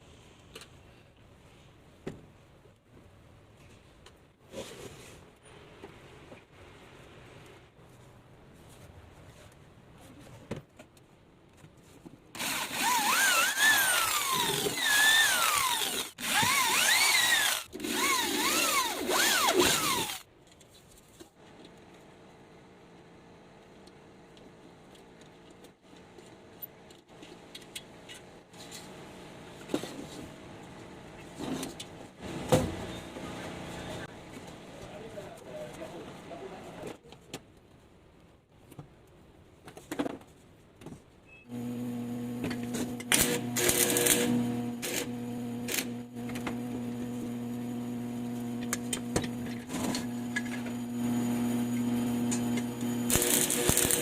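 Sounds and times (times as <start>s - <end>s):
electrical hum: 41.5s - 54.0s.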